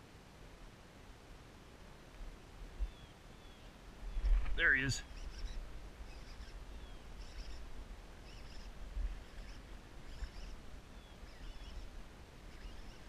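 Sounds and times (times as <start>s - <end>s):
small birds chirping: 2.7s - 13.0s.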